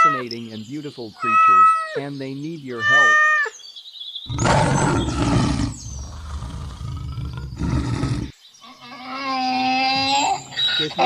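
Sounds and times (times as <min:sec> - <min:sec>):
large animal roaring: 0:04.3 - 0:08.3.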